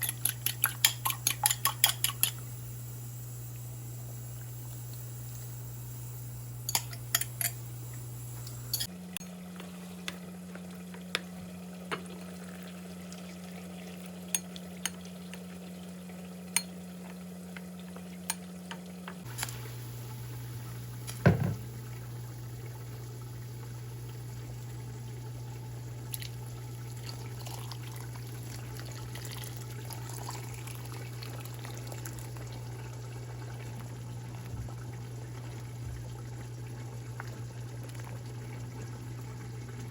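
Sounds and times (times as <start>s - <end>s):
spoon stirring against a pot: 0.0s - 2.5s, 6.7s - 7.6s
soup simmering in a pot: 0.0s - 39.9s.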